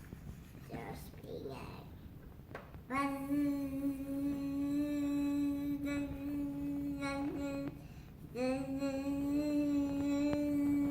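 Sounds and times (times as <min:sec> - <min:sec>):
child humming a steady note: 0:02.9 - 0:10.9.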